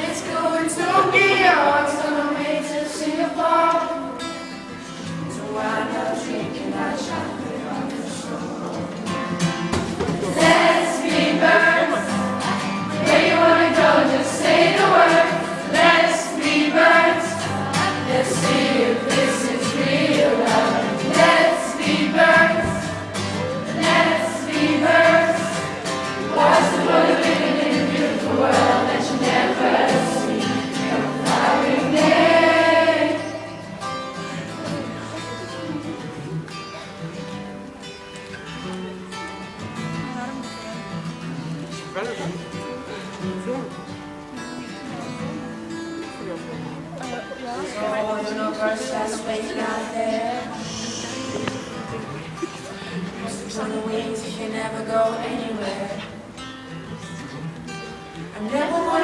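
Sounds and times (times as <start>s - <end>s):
many voices singing: 0.0s - 35.2s, 47.6s - 56.3s, 58.2s - 59.0s.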